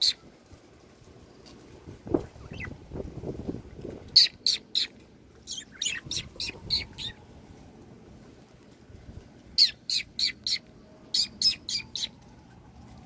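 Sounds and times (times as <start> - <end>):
wind buffeting microphone: 1.7 - 4.3, 5.5 - 8.2, 8.8 - 9.6
parakeets chirping: 2.2 - 2.8, 4.2 - 4.9, 5.5 - 7.2, 9.6 - 12.2.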